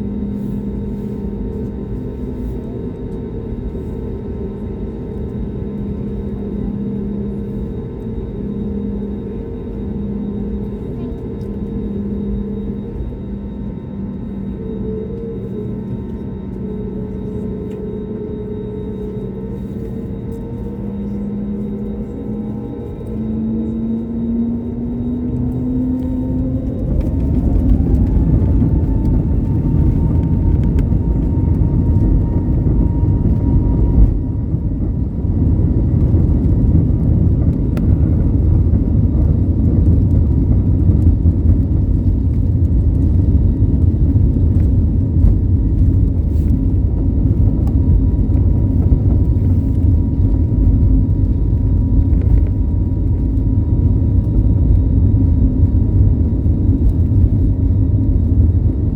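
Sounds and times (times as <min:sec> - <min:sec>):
loud rumble of takeoff roll: 0:02.0 - 0:58.9
jet engines spooling up: 0:18.2 - 0:54.8.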